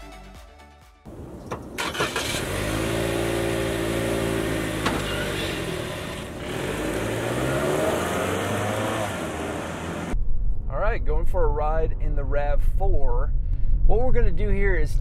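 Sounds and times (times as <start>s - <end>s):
car engine accelerating: 1.8s - 10.2s.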